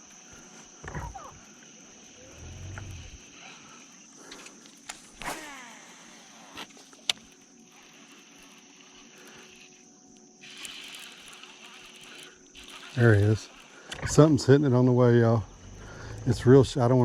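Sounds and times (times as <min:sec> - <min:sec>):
high-pitched hum: 0:00.0 - 0:04.0
fishing reel whir: 0:00.0 - 0:17.0
faint reel winding: 0:01.1 - 0:16.4.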